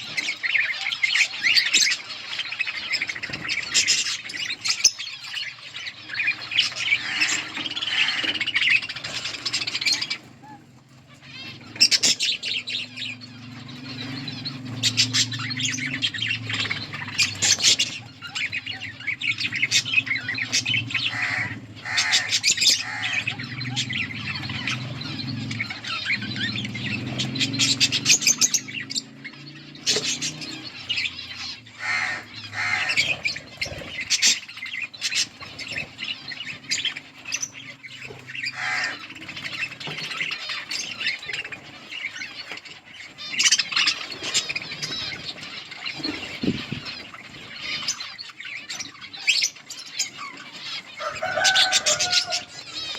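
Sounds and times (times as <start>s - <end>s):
budgerigars chattering and squawking: 0.0s - 52.9s.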